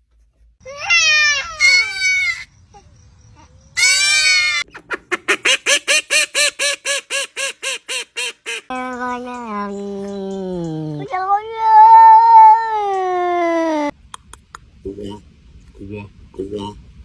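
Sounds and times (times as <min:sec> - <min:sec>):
animal calling: 0:00.9 - 0:06.5.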